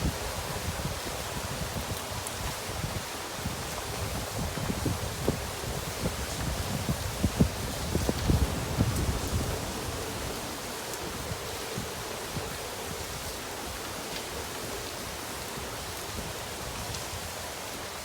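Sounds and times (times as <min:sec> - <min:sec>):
steady rain hiss: 0:00.0 - 0:18.0.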